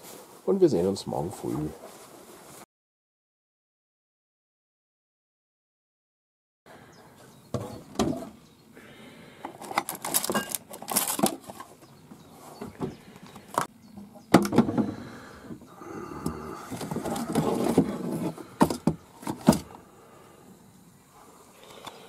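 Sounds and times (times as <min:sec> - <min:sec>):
rustling: 0:00.0 - 0:02.6, 0:09.6 - 0:13.7.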